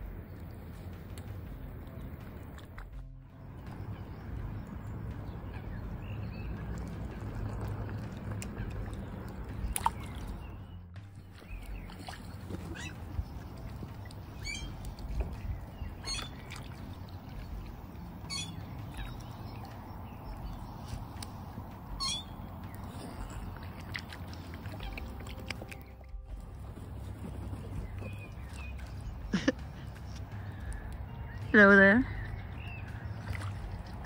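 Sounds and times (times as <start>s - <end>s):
low steady rumble: 0.0s - 34.0s
high chirping bird calls: 8.5s - 26.0s, 27.3s - 33.5s.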